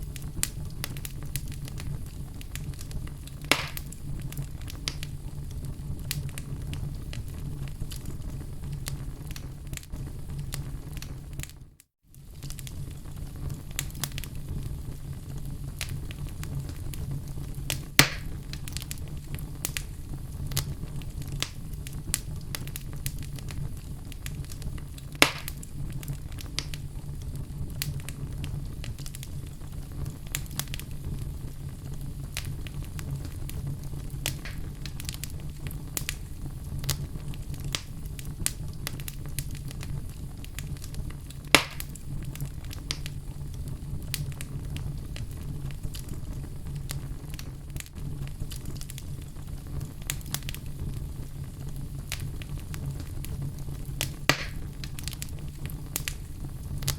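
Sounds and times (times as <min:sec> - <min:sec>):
fire crackling and popping: 0:00.0 - 0:56.9.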